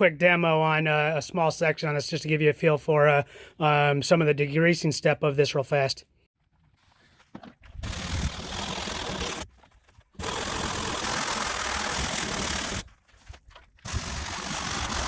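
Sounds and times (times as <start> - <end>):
motor-driven tool running: 7.8 - 9.5, 10.2 - 12.9, 13.9 - 15.0.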